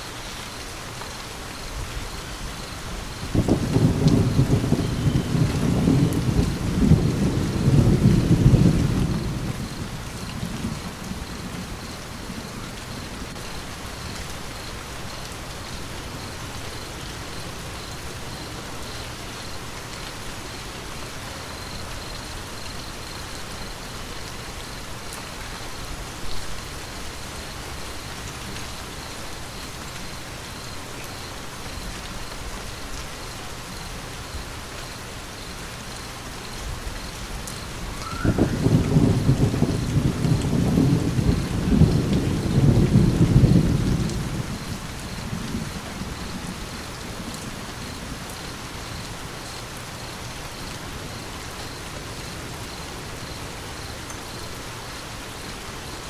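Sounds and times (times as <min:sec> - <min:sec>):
steady rain falling: 0:00.0 - 0:56.0
deep rumble of thunder: 0:02.8 - 0:15.0, 0:36.5 - 0:49.1.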